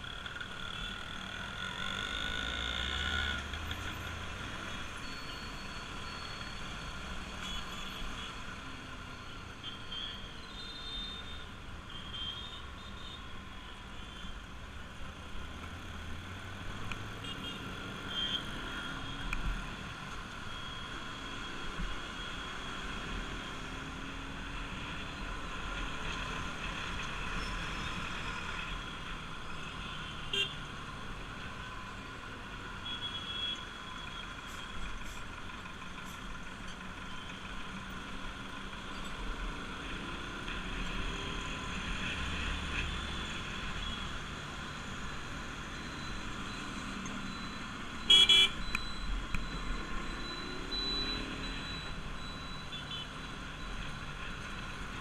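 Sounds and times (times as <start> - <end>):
road noise: 0.0 - 55.0
vehicle horn honking: 48.1 - 48.6.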